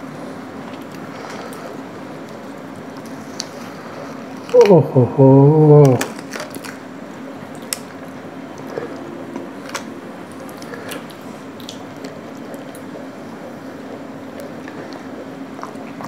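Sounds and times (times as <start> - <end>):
faint hum: 0.0 - 16.0
wet chewing: 5.8 - 16.0.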